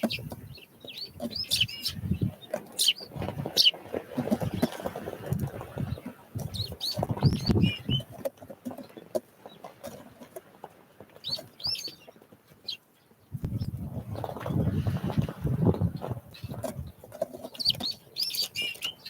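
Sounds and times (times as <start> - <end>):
bird wings fluttering: 1.2 - 8.2.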